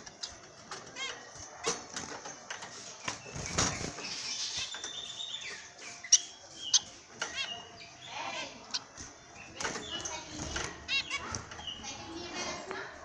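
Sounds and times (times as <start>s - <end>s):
bird chirps: 2.6s - 12.4s
birds flapping wings: 3.1s - 4.2s.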